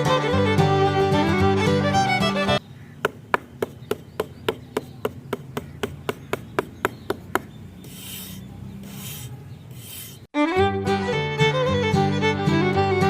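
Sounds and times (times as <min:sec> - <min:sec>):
light evenly spaced taps: 0:02.9 - 0:07.6
rasping strokes on wood: 0:03.0 - 0:10.3.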